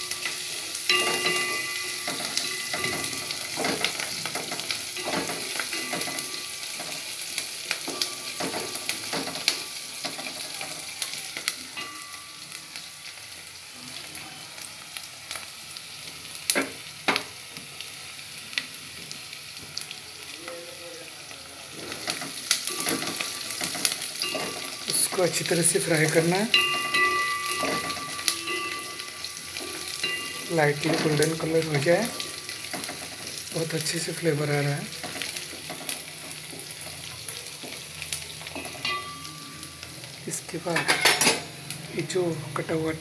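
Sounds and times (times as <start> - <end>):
vegetables sizzling in hot oil: 0.0 - 43.0
spoon knocking: 26.5 - 31.3.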